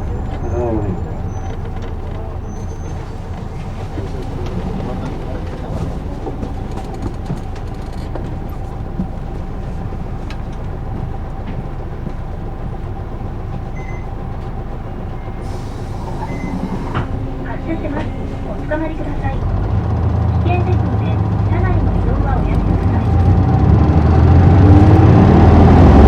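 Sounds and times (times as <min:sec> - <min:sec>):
bus diesel engine rumble: 0:00.0 - 0:26.0
faint clicks and rattles: 0:01.2 - 0:12.4.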